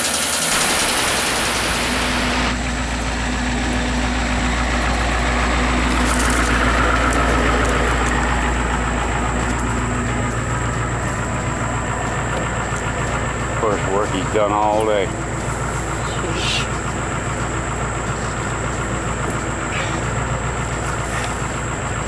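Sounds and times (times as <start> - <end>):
loud hiss: 0.0 - 2.8
engine idling: 0.0 - 22.0.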